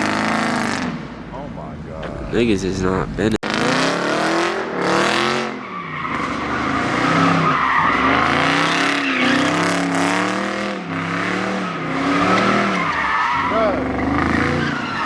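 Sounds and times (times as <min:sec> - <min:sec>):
car engine revving: 0:00.0 - 0:15.0
tyres squealing on pavement: 0:05.5 - 0:10.2, 0:10.9 - 0:15.0.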